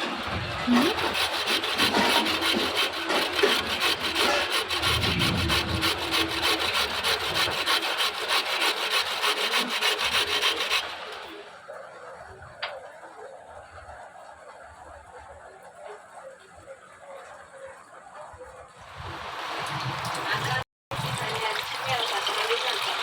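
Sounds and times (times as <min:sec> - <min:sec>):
carrots grated on metal grater: 0:00.7 - 0:11.2.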